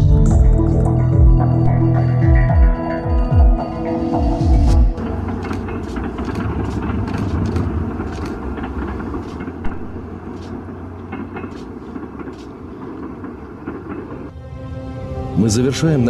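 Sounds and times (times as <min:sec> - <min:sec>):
train rumbling on rails: 0:03.9 - 0:14.4
sharp rail clicks: 0:05.0 - 0:14.3.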